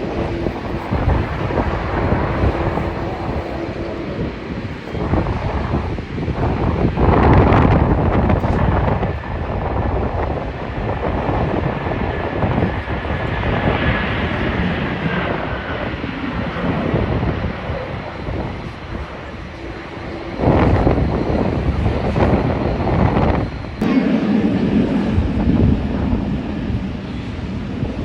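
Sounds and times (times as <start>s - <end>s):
jet airliner engines roaring: 0.0s - 28.0s
faint engine whine: 14.0s - 28.0s.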